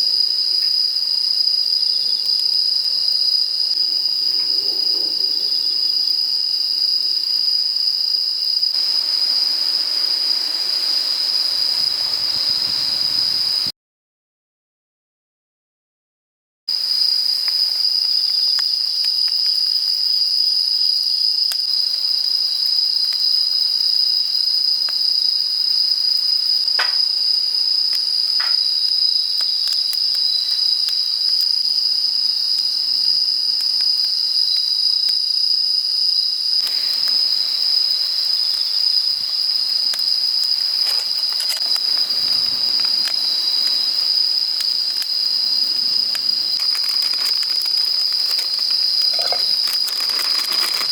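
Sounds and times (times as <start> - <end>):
crickets chirring: 0.0 - 13.7, 16.7 - 50.9
soft hiss with faint crackles: 8.8 - 13.7, 36.6 - 50.9.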